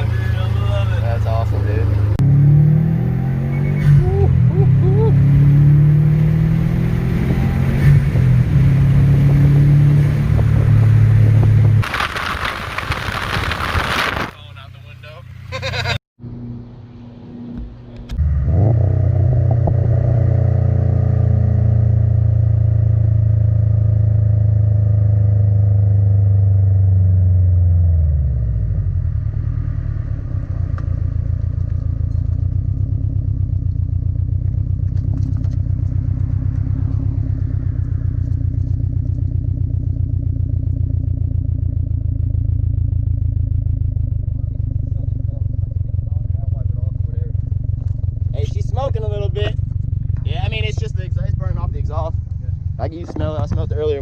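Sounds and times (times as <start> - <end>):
car engine idling: 0.0 - 2.2, 28.4 - 54.0.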